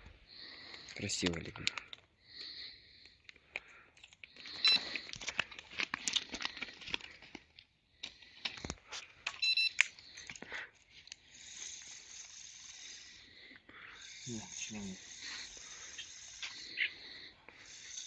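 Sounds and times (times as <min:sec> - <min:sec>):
electronic bite alarm beeping: 0:04.6 - 0:04.9, 0:09.4 - 0:09.8.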